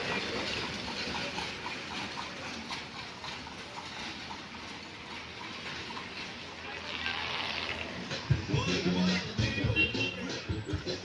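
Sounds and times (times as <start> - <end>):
horse hooves clip-clopping: 0.0 - 6.4
street noise: 0.0 - 11.0.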